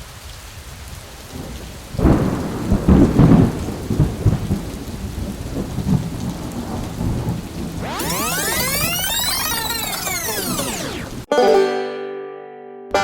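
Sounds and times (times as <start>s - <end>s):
rain falling: 0.0s - 11.3s
thunder rumbling: 2.0s - 8.3s.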